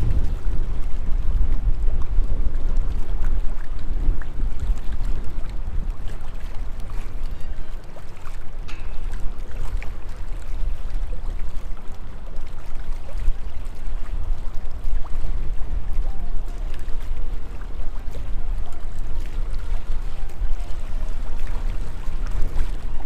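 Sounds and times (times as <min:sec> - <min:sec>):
gusty wind buffeting microphone: 0:00.0 - 0:11.5.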